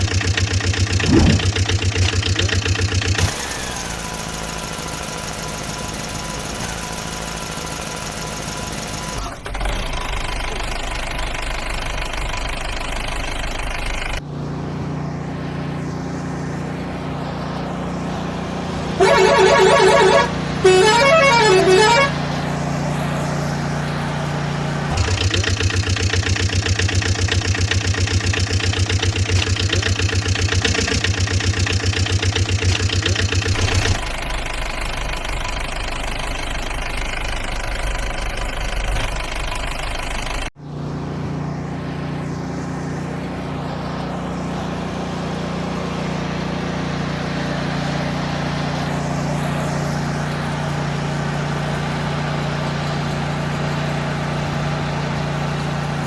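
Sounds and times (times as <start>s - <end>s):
truck and tractor engines: 0.0s - 56.0s
vehicle horn: 18.9s - 22.6s.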